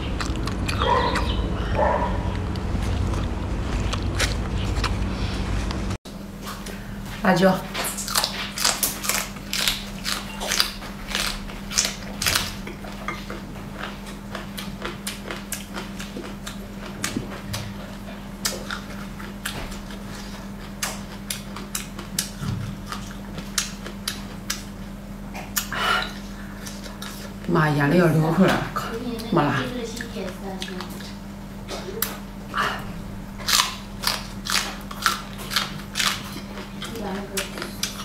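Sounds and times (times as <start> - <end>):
crisp bites and wet chewing: 0.0 - 5.8, 7.9 - 24.8, 33.4 - 38.0
steady low hum: 0.0 - 38.0.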